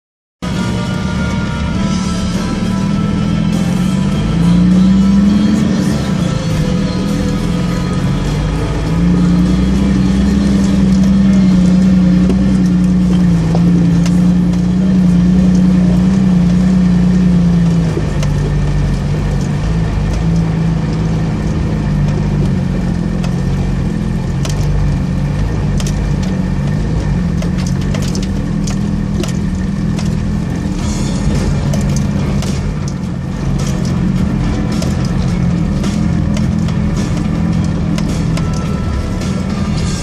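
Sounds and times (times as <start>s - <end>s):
engine droning in low gear: 0.4s - 40.0s
sharp knocks and clicks: 24.3s - 25.0s, 25.6s - 39.8s.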